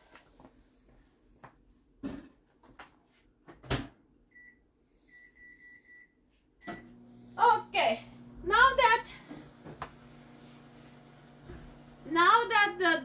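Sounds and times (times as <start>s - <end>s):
microwave oven humming: 6.6s - 13.0s.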